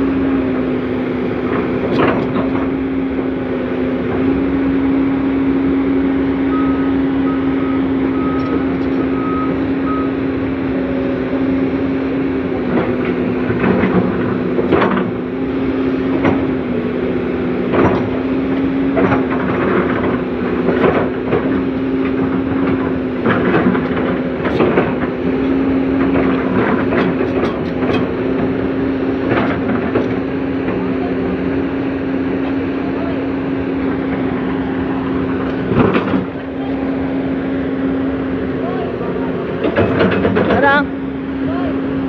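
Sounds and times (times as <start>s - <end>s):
excavator diesel engine running: 0.0s - 42.0s
short electronic beeps: 6.5s - 10.2s.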